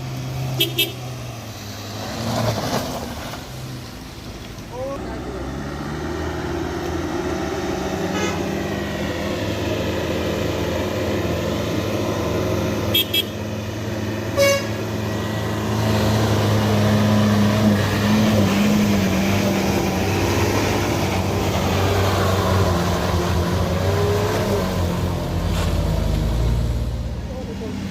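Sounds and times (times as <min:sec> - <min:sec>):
horn toots: 0:00.5 - 0:01.1, 0:08.1 - 0:08.6, 0:12.9 - 0:13.4, 0:14.3 - 0:14.8
heavy vehicle engine running: 0:03.7 - 0:27.9.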